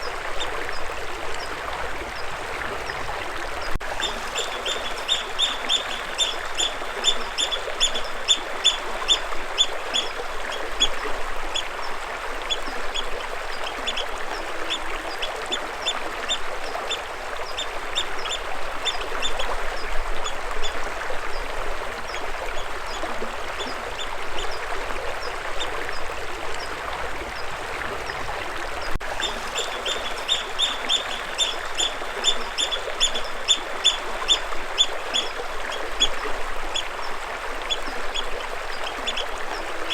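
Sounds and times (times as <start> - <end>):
stream water running: 0.0 - 39.9
bird chirping: 4.0 - 9.2, 29.2 - 34.0.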